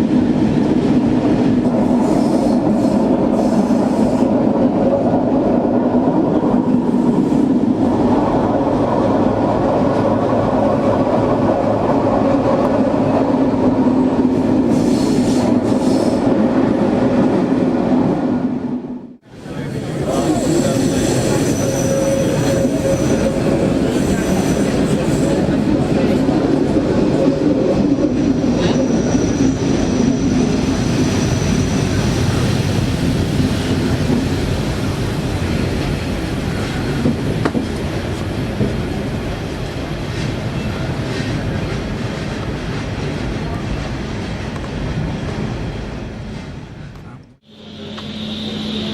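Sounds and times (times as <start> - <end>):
train wheels rumbling on track: 0.0 - 48.9
high-pitched wheel squeals: 20.6 - 23.5
thin high whine: 47.5 - 48.9.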